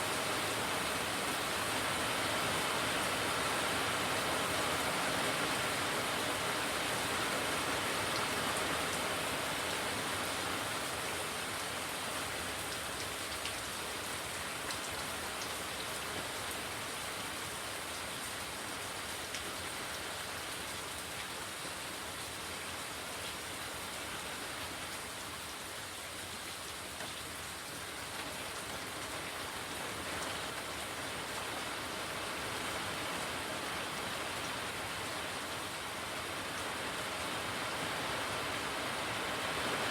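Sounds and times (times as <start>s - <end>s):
steady rain falling: 0.0s - 39.9s
raindrops ticking on surfaces: 6.4s - 23.5s.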